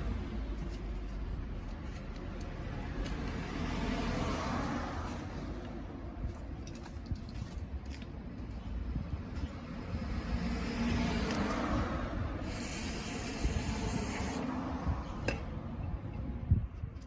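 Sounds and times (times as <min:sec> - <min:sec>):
rubbing and handling noise: 0:00.5 - 0:02.4
hissing spray: 0:12.4 - 0:14.4.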